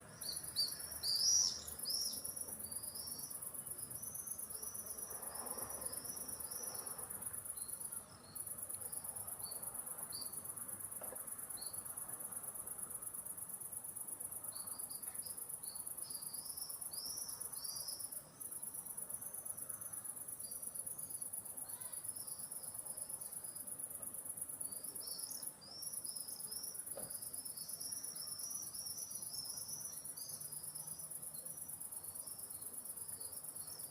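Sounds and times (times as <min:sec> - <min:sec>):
high-pitched insect trill: 0:00.1 - 0:33.9.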